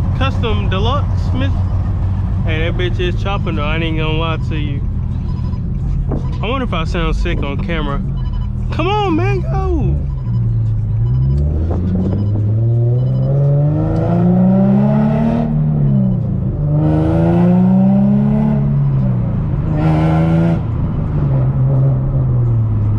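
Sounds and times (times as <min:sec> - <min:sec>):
car engine accelerating through gears: 0:09.4 - 0:22.9.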